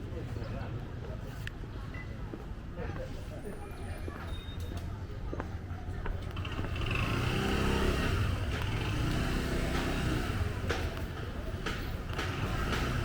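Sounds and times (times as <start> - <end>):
vehicle driving past: 6.4 - 11.0, 12.0 - 13.0.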